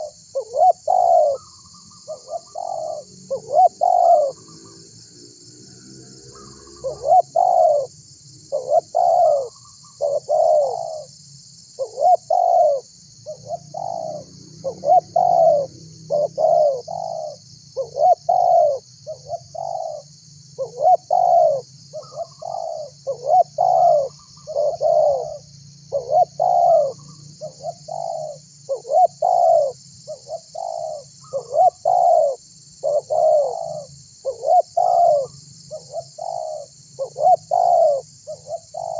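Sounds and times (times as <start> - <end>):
dove cooing: 0.0 - 4.8, 6.1 - 11.2, 11.8 - 38.9.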